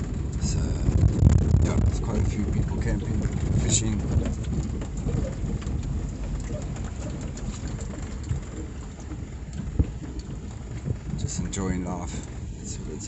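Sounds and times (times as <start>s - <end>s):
truck engine low rumble: 0.0s - 13.0s
tyres crunching on gravel: 0.0s - 13.0s.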